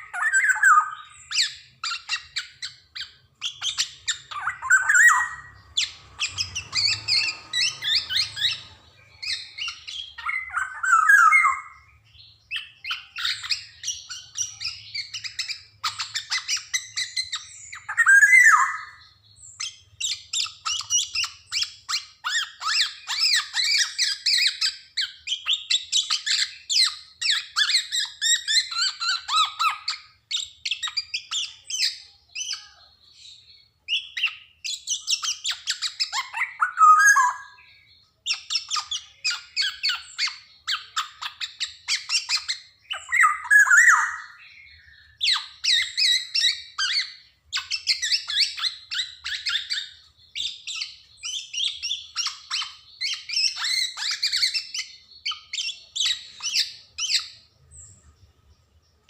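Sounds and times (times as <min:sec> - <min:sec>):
oriole calling and singing: 0:00.0 - 0:59.0.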